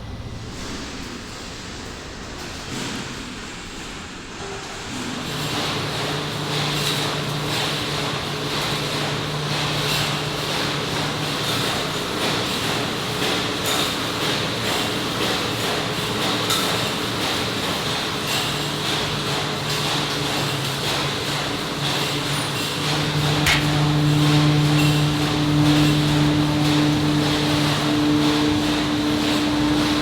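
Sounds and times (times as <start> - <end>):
factory machinery humming: 18.6 - 30.0
metallic clanks and knocks: 23.4 - 24.1.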